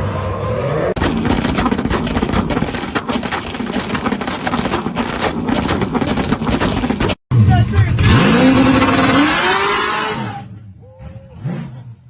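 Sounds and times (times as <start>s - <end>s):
car engine running: 0.0s - 7.2s
crackling clicks: 1.0s - 7.2s.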